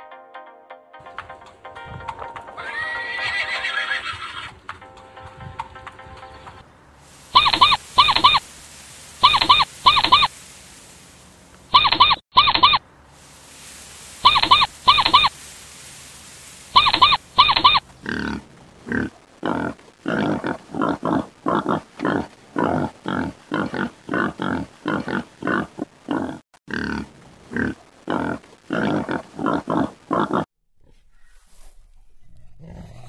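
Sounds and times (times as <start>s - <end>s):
short high-pitched animal chirps: 7.3s - 8.4s, 9.2s - 10.3s, 11.7s - 12.8s, 14.2s - 15.3s, 16.7s - 17.8s.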